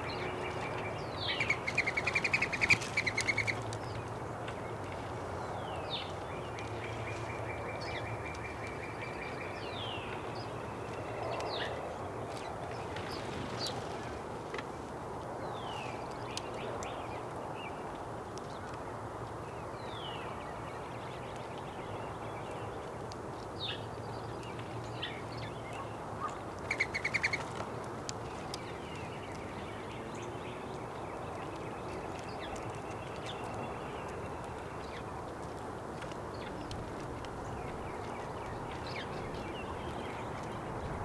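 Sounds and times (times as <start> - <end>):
small songbirds chirping: 0.0 - 41.0
rapid chattering bird calls: 26.7 - 27.5.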